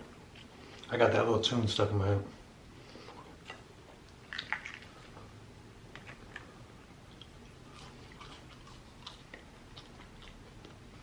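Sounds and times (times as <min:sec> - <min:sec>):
person chewing food: 0:02.9 - 0:11.0.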